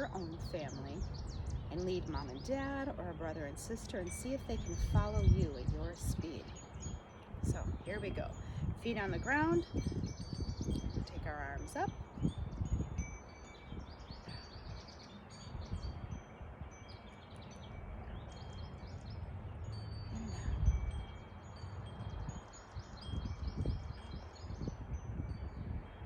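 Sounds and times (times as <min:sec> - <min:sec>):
songbirds singing: 0:00.0 - 0:26.0.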